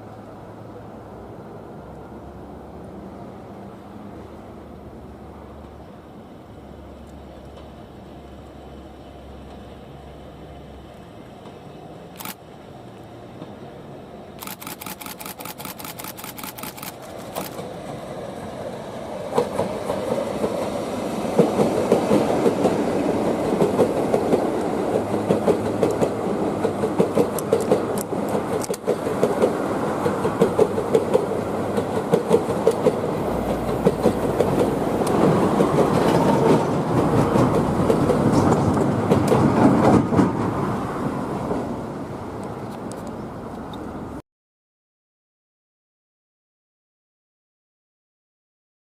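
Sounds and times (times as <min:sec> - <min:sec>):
electric train passing: 0:00.0 - 0:44.2
camera shutter clicks: 0:12.2 - 0:12.4, 0:14.4 - 0:17.6
wheels clattering over rail joints: 0:21.4 - 0:40.7.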